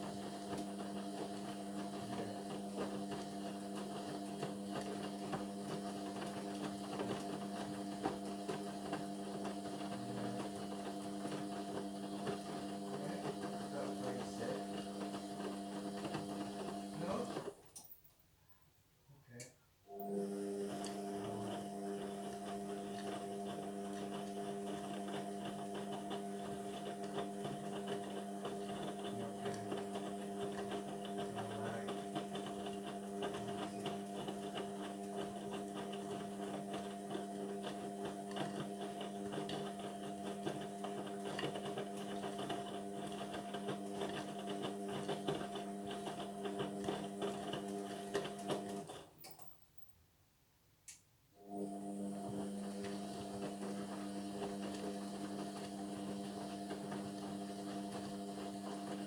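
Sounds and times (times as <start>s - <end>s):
washing machine motor hum: 0.0s - 17.6s, 19.9s - 49.1s, 51.4s - 59.0s.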